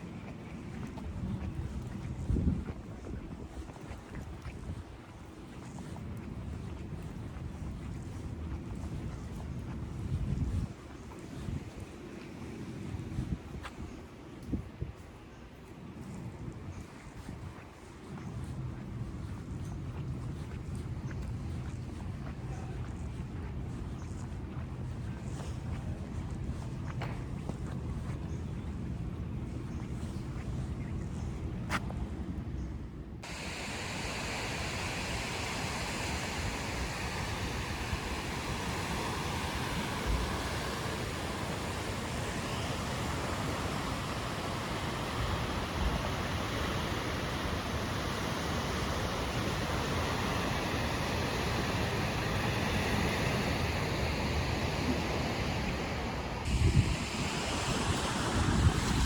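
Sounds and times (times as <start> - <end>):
choppy lake water: 0.0 - 32.6, 33.2 - 59.0
wind rumble on microphone: 0.0 - 59.0
light rain hiss: 33.2 - 59.0
wind rushing: 33.2 - 59.0.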